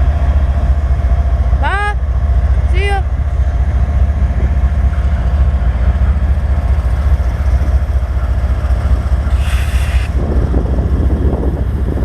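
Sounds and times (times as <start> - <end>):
train passing rumble: 0.0 - 12.0
burst of hiss: 9.3 - 10.2.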